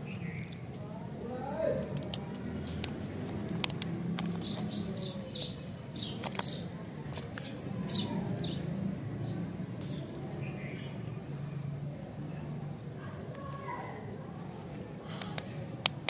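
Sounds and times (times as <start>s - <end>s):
small bird chirping: 0.0s - 0.7s, 4.1s - 11.5s.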